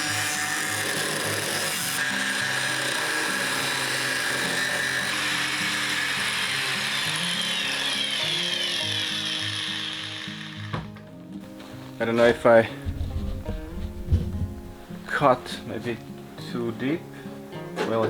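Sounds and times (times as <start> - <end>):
power tool cutting sheet metal: 0.0 - 11.0.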